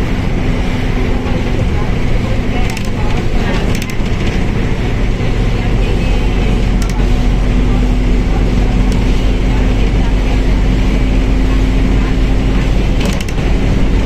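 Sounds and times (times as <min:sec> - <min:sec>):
bus engine drone: 0:00.0 - 0:14.0
constant whine: 0:00.0 - 0:14.0
clicks: 0:02.6 - 0:04.4, 0:06.6 - 0:07.2, 0:13.0 - 0:13.5.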